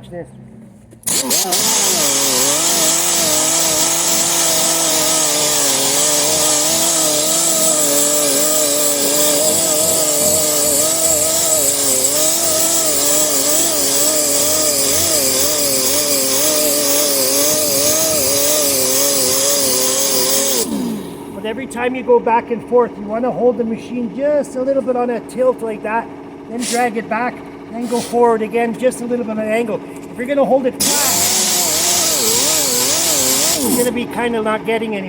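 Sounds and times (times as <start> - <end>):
power sander grinding metal: 1.0 - 21.4, 30.8 - 34.8.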